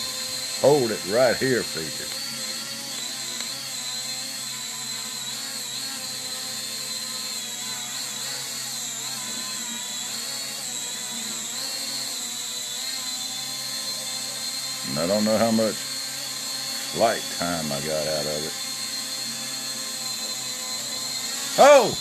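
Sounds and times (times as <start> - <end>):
toy drone hovering: 0.0 - 22.0.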